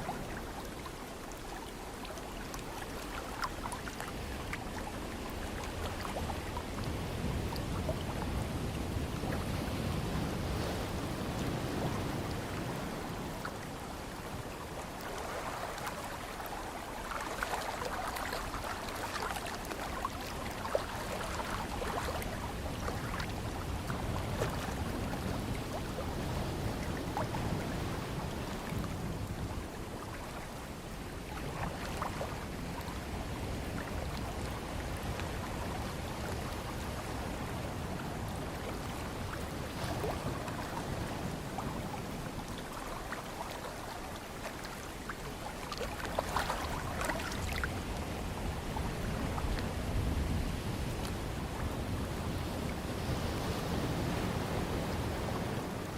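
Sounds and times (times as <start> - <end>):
small sharp splashes and drips: 0.0 - 7.0, 13.4 - 25.9, 42.3 - 47.8.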